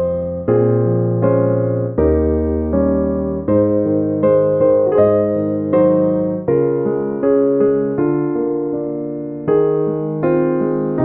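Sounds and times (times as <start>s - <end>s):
electric piano chords: 0.0s - 11.0s.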